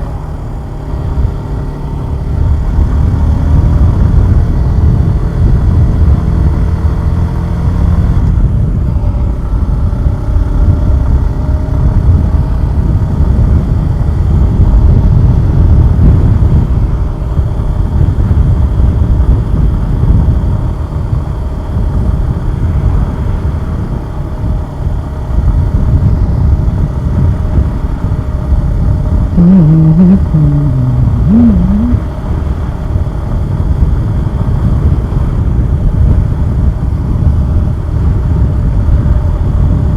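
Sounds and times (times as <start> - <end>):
motorcycle engine running: 0.0 - 39.9
wind and road noise: 0.0 - 39.9
wavering tone: 29.4 - 32.0.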